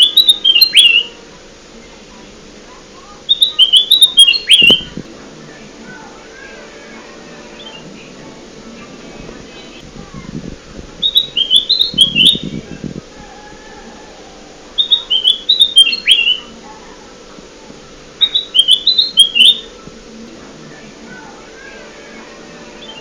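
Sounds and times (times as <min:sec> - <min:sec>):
bulbul song bird-lure call: 0:00.0 - 0:01.2, 0:03.3 - 0:04.9, 0:11.0 - 0:12.5, 0:14.8 - 0:16.5, 0:18.2 - 0:19.9.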